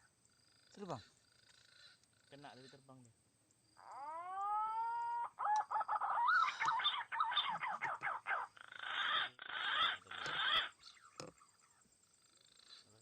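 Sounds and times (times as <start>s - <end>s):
harsh rasping bird calls: 0.0s - 3.1s, 3.7s - 13.0s
pigeon warbling whistled notes: 3.9s - 10.7s.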